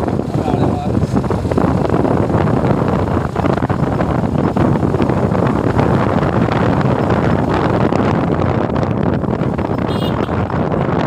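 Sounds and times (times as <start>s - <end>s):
moving vehicle noise: 0.0s - 11.0s
wind on microphone: 0.0s - 11.0s.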